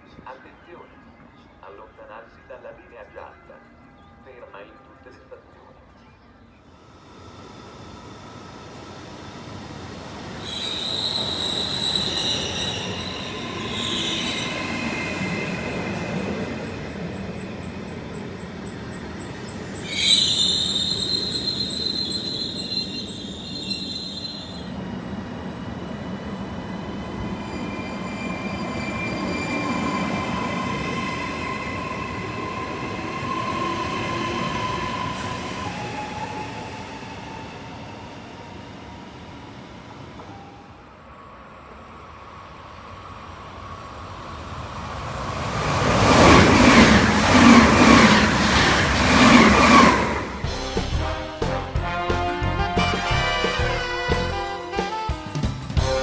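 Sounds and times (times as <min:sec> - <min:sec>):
train rolling along track: 0:06.6 - 0:56.0
train wheels squealing: 0:06.8 - 0:51.2.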